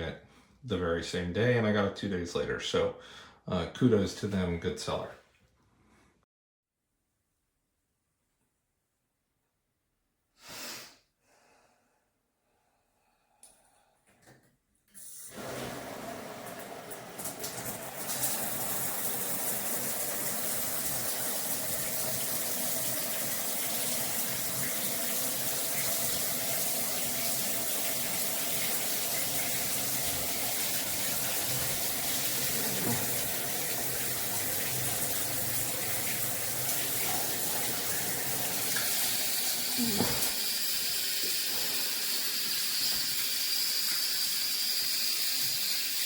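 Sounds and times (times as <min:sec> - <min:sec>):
shower water spraying: 0:14.9 - 0:46.0.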